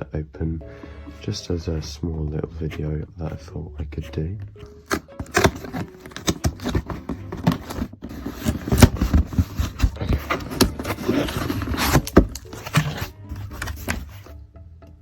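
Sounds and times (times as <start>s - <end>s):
package clicks and knocks: 4.8s - 14.2s
packaging rustling and tearing: 4.8s - 14.3s.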